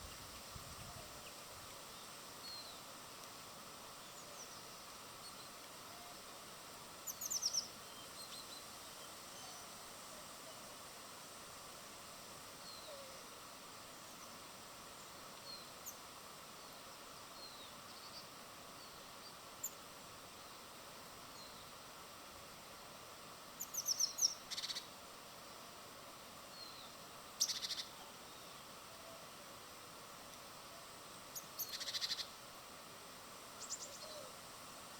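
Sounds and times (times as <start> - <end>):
steady outdoor hiss: 0.0 - 34.9
small birds chirping: 7.0 - 9.7, 23.6 - 24.9, 26.6 - 28.7, 31.3 - 32.4, 33.6 - 34.3.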